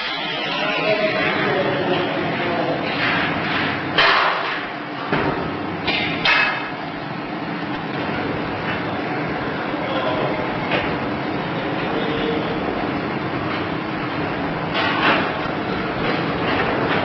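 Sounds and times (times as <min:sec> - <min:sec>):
steady industrial hum: 0:00.0 - 0:17.0.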